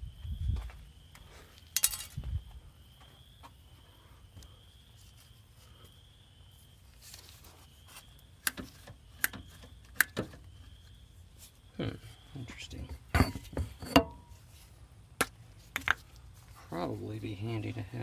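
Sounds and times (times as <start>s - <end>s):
tools clicking and knocking: 1.8s - 2.2s.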